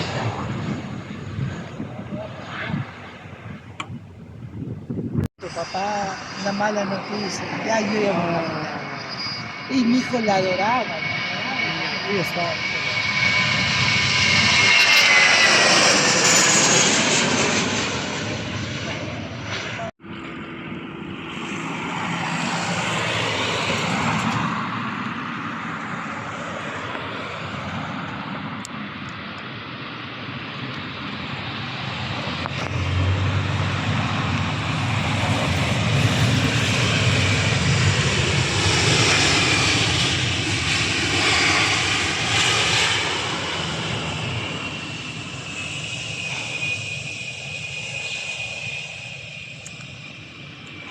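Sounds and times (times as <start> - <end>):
airliner engines passing: 0.0 - 50.9
thin engine whine: 31.3 - 50.9.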